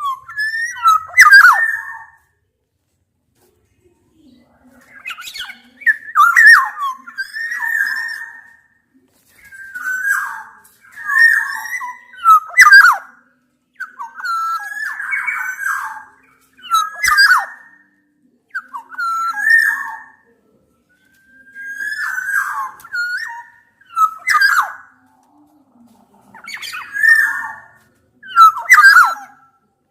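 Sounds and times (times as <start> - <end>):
birds fluty whistling calls: 0.0 - 2.2, 4.8 - 13.2, 13.8 - 17.9, 18.5 - 20.2, 20.9 - 25.0, 26.3 - 29.6.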